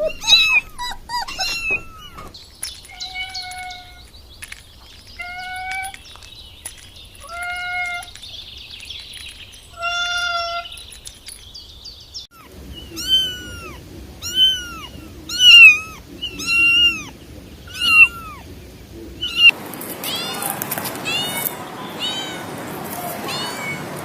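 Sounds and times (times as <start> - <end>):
cat meowing: 0.0 - 4.0, 5.2 - 6.0, 7.2 - 8.2, 9.8 - 10.7, 12.4 - 18.5, 19.2 - 24.0.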